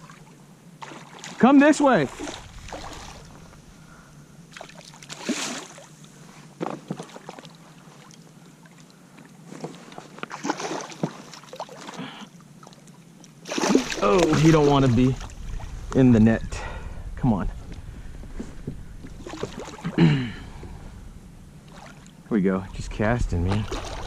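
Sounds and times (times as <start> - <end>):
small water splashes: 0.0 - 3.4, 4.5 - 6.0, 10.3 - 15.8, 19.1 - 20.0, 21.7 - 22.2, 23.4 - 24.0.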